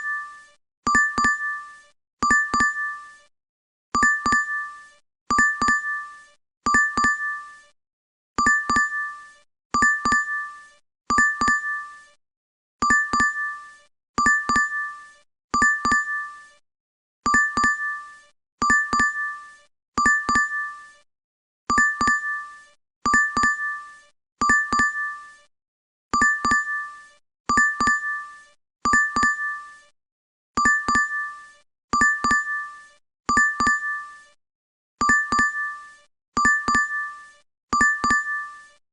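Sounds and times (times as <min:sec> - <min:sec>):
app notification double ding: 0:32.0 - 0:32.4, 0:35.0 - 0:35.5, 0:36.4 - 0:37.0, 0:37.8 - 0:38.4.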